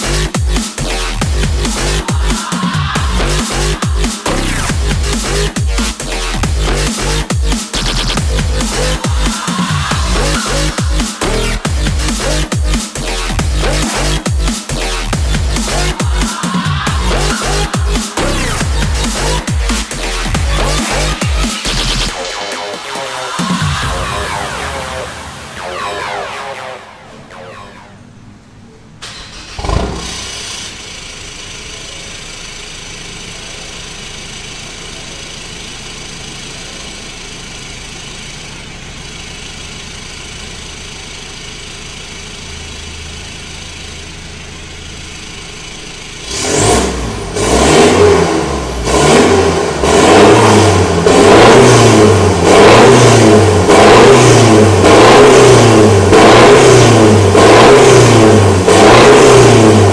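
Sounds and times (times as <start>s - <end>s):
pickup truck engine idling: 0.0s - 25.6s, 29.0s - 59.9s
engine revving in short blips: 29.0s - 32.1s, 45.1s - 59.9s.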